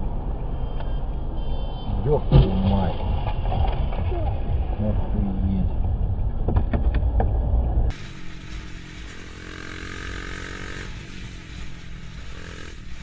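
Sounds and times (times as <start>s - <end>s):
car road and engine noise: 0.0s - 13.0s
motorcycle engine running: 6.6s - 13.0s.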